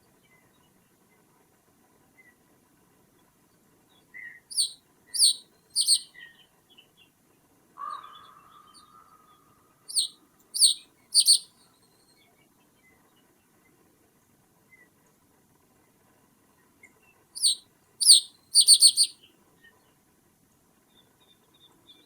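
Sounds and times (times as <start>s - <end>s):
bird calling sharp high calls: 4.5s - 6.2s, 7.8s - 11.5s, 17.4s - 19.2s.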